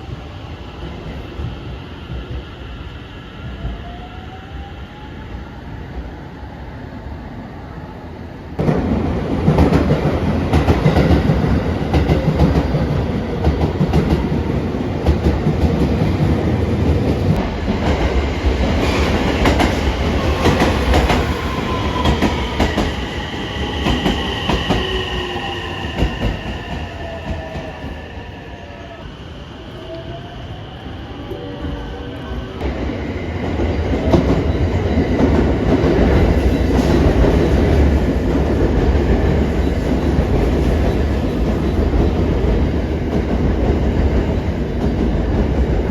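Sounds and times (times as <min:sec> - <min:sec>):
train whining and squealing: 0:00.0 - 0:08.2, 0:18.2 - 0:45.9.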